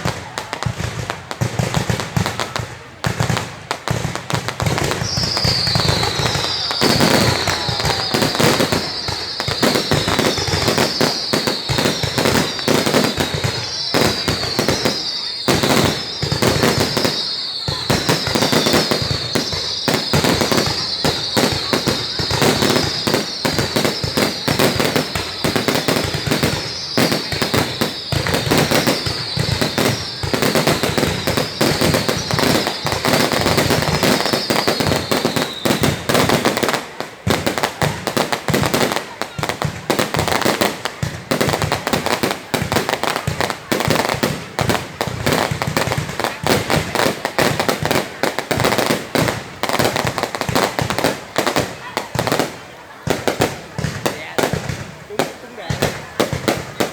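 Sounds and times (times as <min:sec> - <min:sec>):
fireworks cracks and bangs: 0:00.0 - 0:56.9
falling firework whistle: 0:04.6 - 0:52.6.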